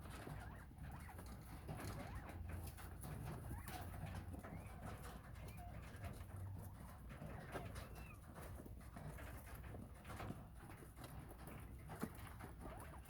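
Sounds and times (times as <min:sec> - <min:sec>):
quail chirping: 0:00.0 - 0:09.8
small ticks and scratches: 0:00.0 - 0:13.0.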